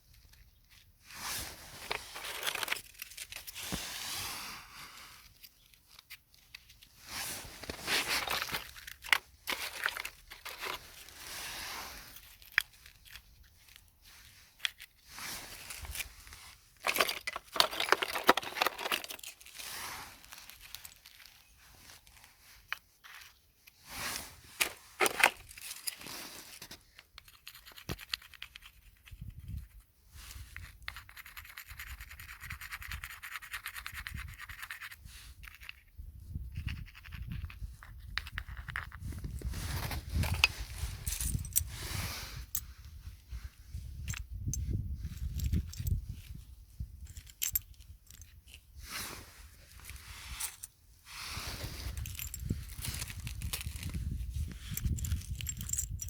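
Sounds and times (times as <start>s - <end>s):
scraping and crinkling: 0.1s - 28.8s, 37.2s - 44.2s, 47.0s - 56.0s.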